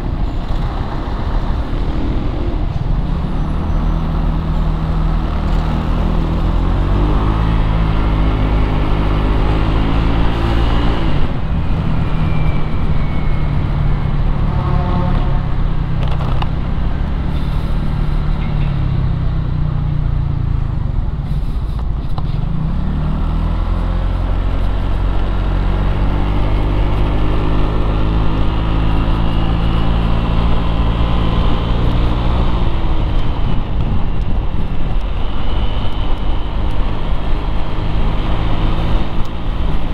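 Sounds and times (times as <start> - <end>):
motorcycle engine revving: 0.0 - 19.8
traffic rumble: 0.0 - 39.9.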